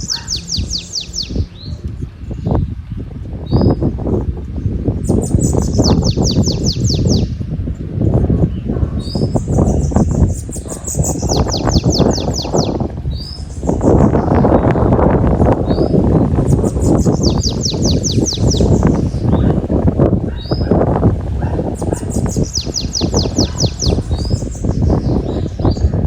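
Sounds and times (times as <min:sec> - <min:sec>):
bird singing high descending notes: 0:00.0 - 0:02.6, 0:05.1 - 0:07.4, 0:09.1 - 0:14.9, 0:15.6 - 0:19.4
wind buffeting microphone: 0:00.0 - 0:26.0.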